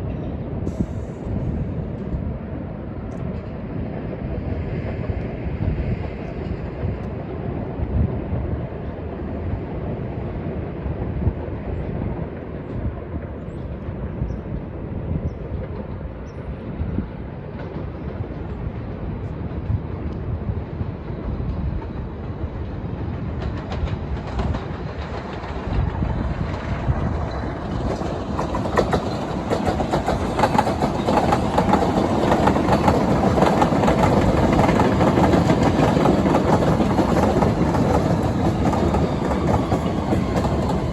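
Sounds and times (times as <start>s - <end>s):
train wheels clicking on rails: 17.2s - 40.9s.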